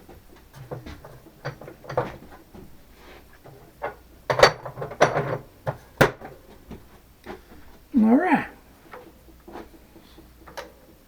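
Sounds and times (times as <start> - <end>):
metal clicks and knocks: 0.4 - 2.7, 3.4 - 6.4.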